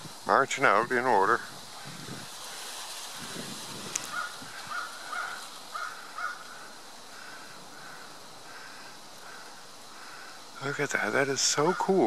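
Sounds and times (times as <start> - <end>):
steady outdoor hiss: 0.0 - 12.0
harsh caw-like bird calls: 4.0 - 10.6, 11.5 - 12.0.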